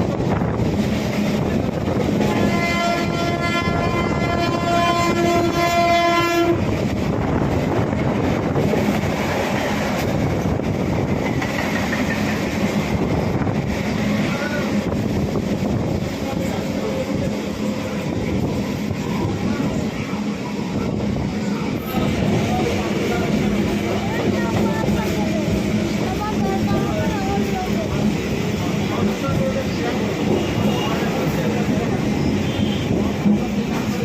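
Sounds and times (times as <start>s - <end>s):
train wheels rumbling on track: 0.0s - 34.0s
train horn blast: 2.2s - 6.7s, 30.2s - 31.6s, 32.2s - 33.2s.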